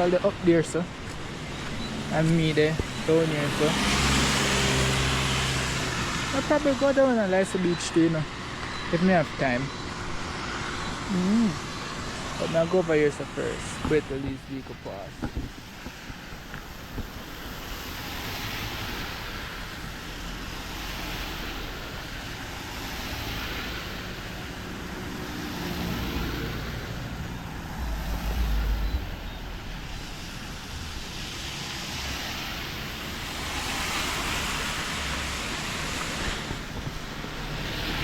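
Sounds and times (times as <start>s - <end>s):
tyres hissing on wet road: 0.0s - 38.0s
deep engine rumble: 26.2s - 30.1s.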